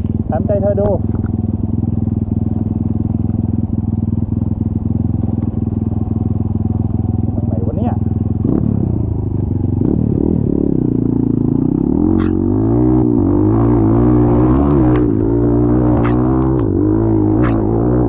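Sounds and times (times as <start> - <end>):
off-road engine revving hard: 8.4 - 9.0, 9.7 - 18.0.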